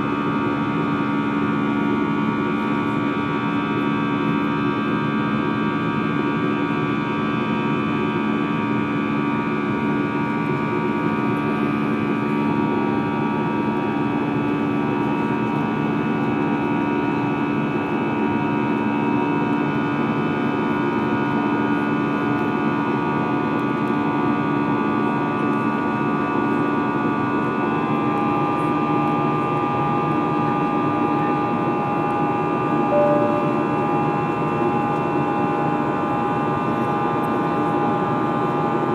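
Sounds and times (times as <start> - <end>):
airliner cabin noise: 28.0 - 38.8.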